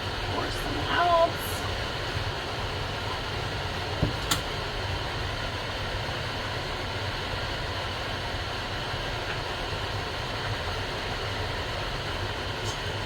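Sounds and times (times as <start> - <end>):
machine hum: 0.0 - 7.6.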